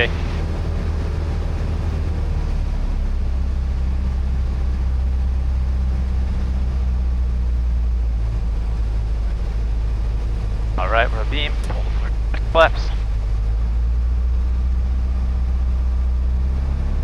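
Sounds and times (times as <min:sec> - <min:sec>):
light aircraft engine droning: 0:00.0 - 0:17.0.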